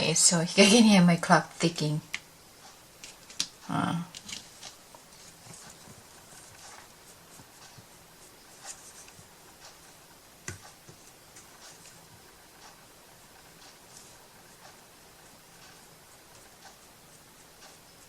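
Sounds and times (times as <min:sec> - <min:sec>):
clock ticking faintly: 0:05.5 - 0:18.0.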